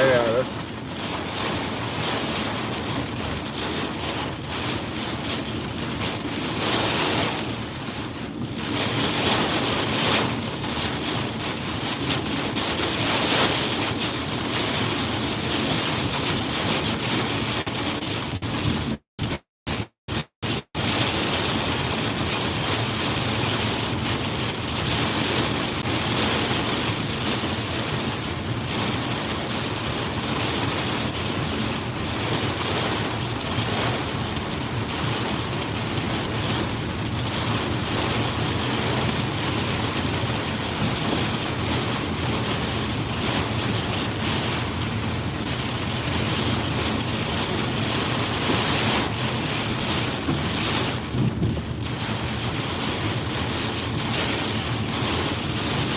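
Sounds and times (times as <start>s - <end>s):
heavy rain: 0.0s - 55.9s
wind: 0.0s - 55.9s
wind buffeting microphone: 28.7s - 55.9s.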